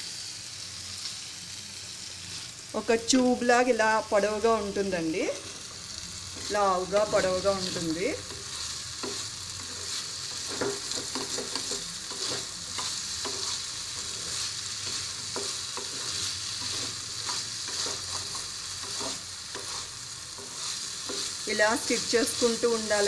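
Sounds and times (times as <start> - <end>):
food sizzling in oil: 0.0 - 23.0
spatula scraping a pan: 6.4 - 22.7.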